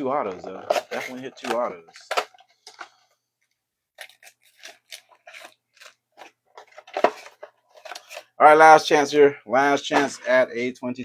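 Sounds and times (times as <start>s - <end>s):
plastic wrappers crinkling and tearing: 4.0s - 8.4s.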